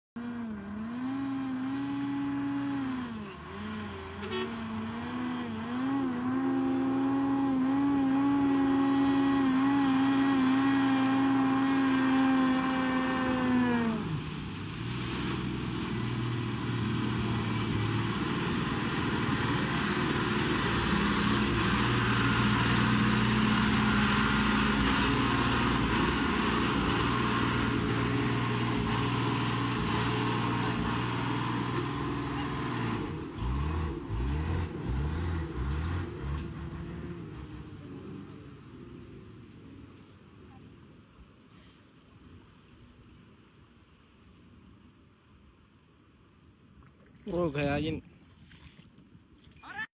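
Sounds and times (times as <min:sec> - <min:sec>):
vehicle engine revving: 0:00.1 - 0:39.3.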